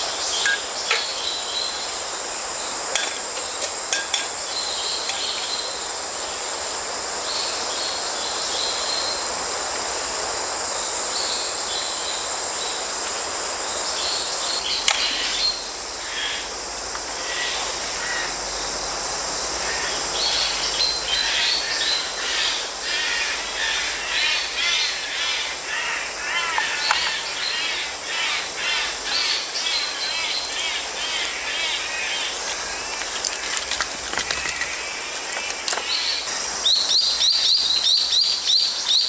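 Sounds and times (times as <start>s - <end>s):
insects trilling: 0.0s - 39.0s
stream water running: 0.0s - 39.0s
bird chirps: 35.8s - 39.0s.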